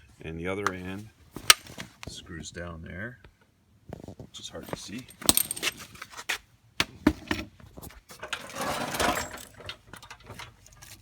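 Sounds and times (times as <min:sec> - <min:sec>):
sharp handling clicks and knocks: 0:00.6 - 0:02.2, 0:04.0 - 0:11.0
rustling scrape: 0:07.7 - 0:09.7.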